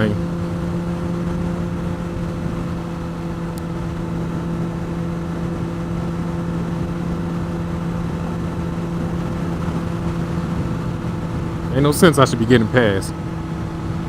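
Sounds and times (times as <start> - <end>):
motorcycle engine cruising: 0.0 - 14.0
wind and road rush: 0.0 - 14.0.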